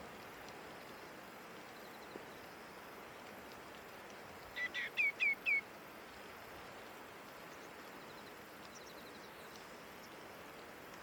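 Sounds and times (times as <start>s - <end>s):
faint background hiss: 0.0s - 11.0s
faint high ticks: 3.2s - 4.7s, 7.2s - 10.2s.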